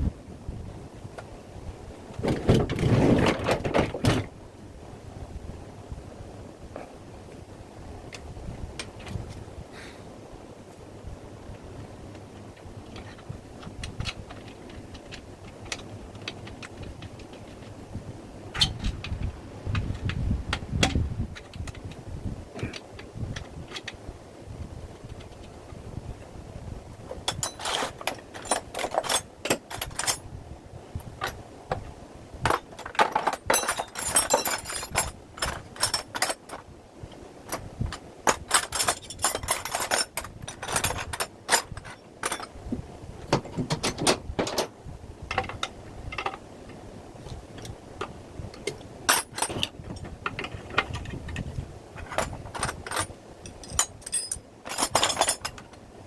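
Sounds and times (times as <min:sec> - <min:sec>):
metal tools clinking and rattling: 0:27.3 - 0:30.3, 0:32.4 - 0:36.7, 0:37.5 - 0:42.6, 0:43.3 - 0:46.4, 0:48.6 - 0:55.7.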